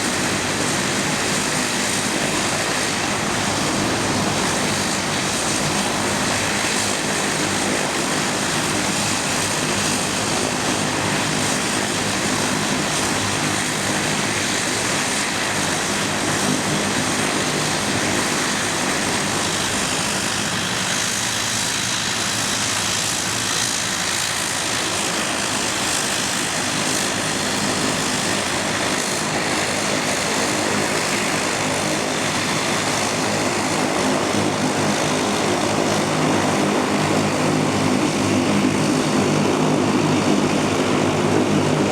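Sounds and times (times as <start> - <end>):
propeller drone: 0.0 - 41.9.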